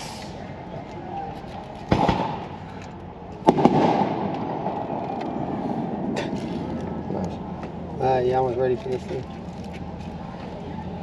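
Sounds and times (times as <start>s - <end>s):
firework hiss: 0.0s - 0.4s
faint firework crack: 1.8s - 7.8s
firework bangs: 1.9s - 2.7s, 3.4s - 6.3s.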